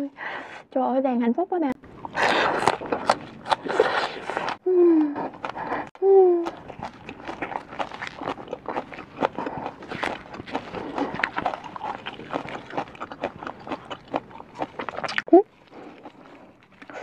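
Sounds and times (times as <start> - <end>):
chewing and mouth smacking: 2.0 - 17.0
person humming mmm: 3.6 - 6.7.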